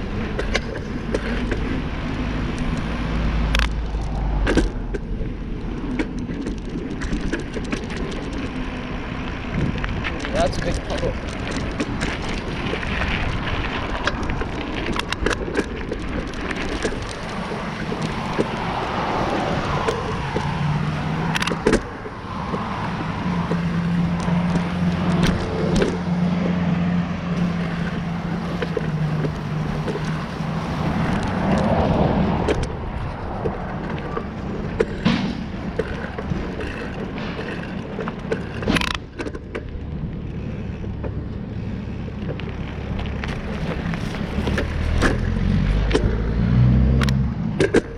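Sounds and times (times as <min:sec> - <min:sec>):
tyre noise on road: 0:00.0 - 0:47.9
vehicle engine hum: 0:00.0 - 0:47.9
wind noise: 0:00.0 - 0:47.9
sharp knocks: 0:35.0 - 0:35.6.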